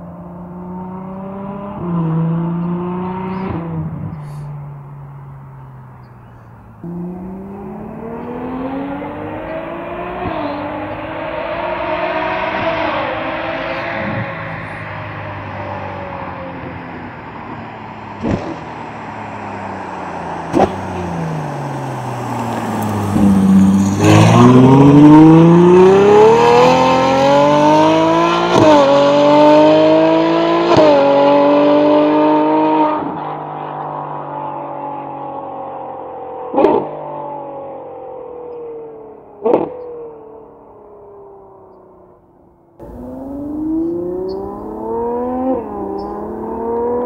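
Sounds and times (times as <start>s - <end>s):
sports car engine accelerating: 0.0s - 47.0s
exhaust cracks: 18.1s - 24.9s.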